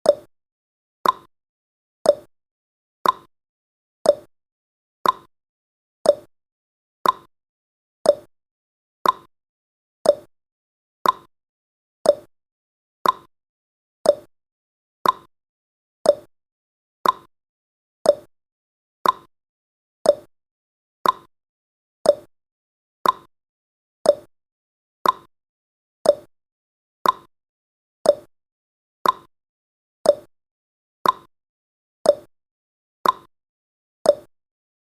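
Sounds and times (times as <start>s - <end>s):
clock ticking: 1.0s - 1.3s, 5.0s - 5.3s, 7.0s - 7.3s, 8.1s - 8.3s, 9.0s - 9.3s, 10.1s - 10.3s, 11.0s - 11.3s, 12.1s - 12.3s, 13.0s - 13.3s, 14.1s - 14.3s, 15.0s - 15.3s, 16.1s - 16.3s, 17.0s - 17.3s, 18.1s - 18.3s, 19.0s - 19.3s, 20.1s - 20.3s, 21.0s - 21.3s, 22.1s - 22.3s, 23.0s - 23.3s, 24.1s - 24.3s, 25.0s - 25.3s, 26.0s - 26.3s, 27.0s - 27.3s, 28.1s - 28.3s, 29.0s - 29.3s, 30.1s - 30.3s, 31.0s - 31.3s, 32.1s - 32.3s, 33.0s - 33.3s, 34.1s - 34.3s.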